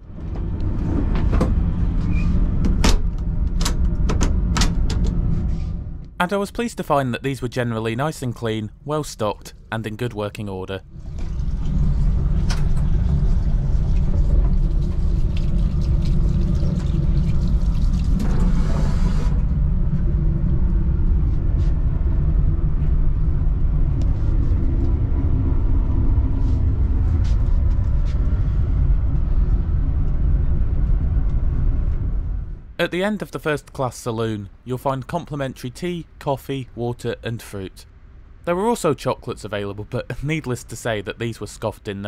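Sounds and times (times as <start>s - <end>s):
train rumble inside coach: 0.0s - 6.2s, 10.9s - 32.8s.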